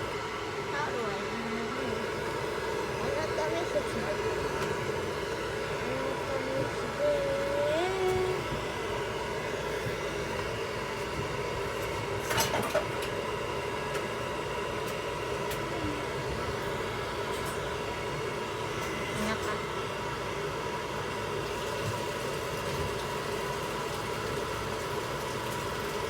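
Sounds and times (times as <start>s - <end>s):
hair dryer blowing: 0.0s - 12.2s.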